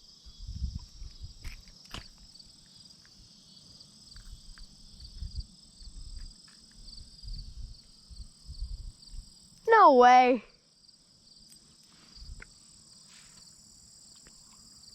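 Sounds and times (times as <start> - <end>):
insects chirring: 0.0 - 14.9.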